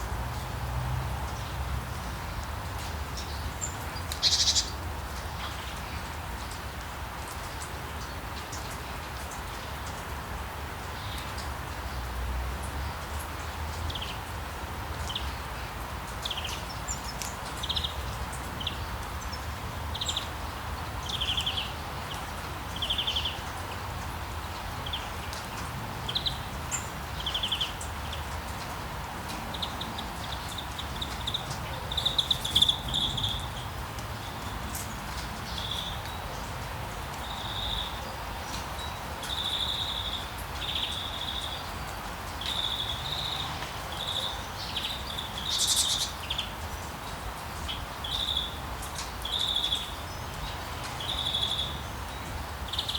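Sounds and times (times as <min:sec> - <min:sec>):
steady rain: 0:00.0 - 0:52.9
birds chirping: 0:03.2 - 0:04.8, 0:29.5 - 0:36.5, 0:37.1 - 0:46.5.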